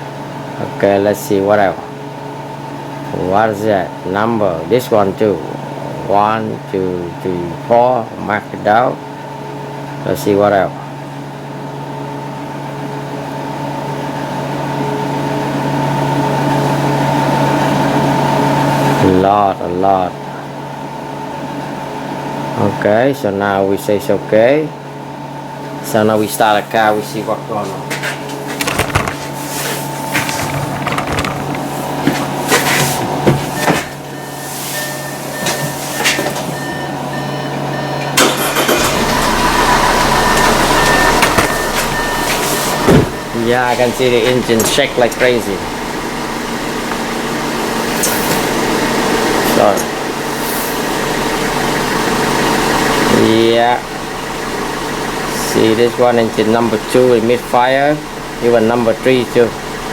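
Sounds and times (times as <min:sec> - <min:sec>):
mechanical hum with tones: 0:00.0 - 0:59.9
car engine cranking and running rough: 0:30.0 - 0:34.2, 0:38.0 - 0:59.9
short electronic beep: 0:33.6 - 0:38.2, 0:39.7 - 0:45.0
hiss: 0:50.4 - 0:50.8.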